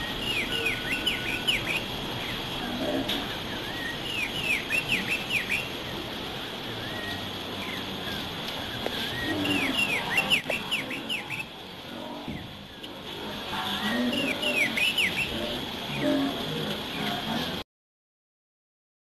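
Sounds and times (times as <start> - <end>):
bird downward-sweeping whistles: 0.0 - 1.9, 3.5 - 5.8, 8.6 - 11.6, 13.8 - 15.5
soft rising bird calls: 0.0 - 17.0.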